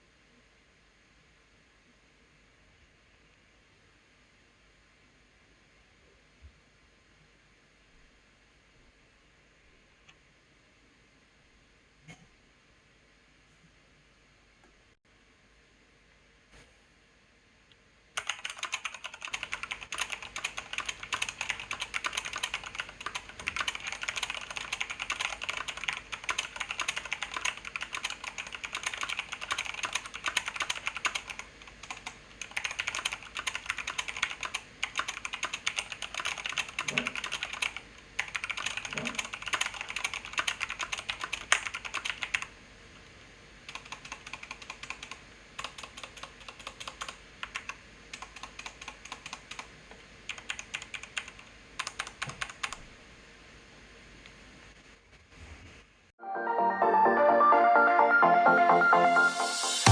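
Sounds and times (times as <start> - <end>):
mechanical keyboard typing: 18.2 - 42.5, 43.7 - 49.7, 50.3 - 52.8.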